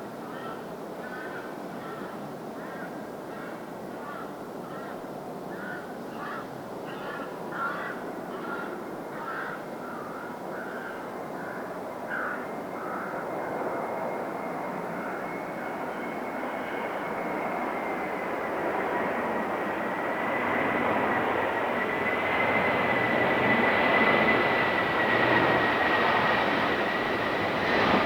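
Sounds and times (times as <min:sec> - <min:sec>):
crows cawing: 0:02.6 - 0:13.2
jet airliner engine rushing: 0:14.1 - 0:28.0.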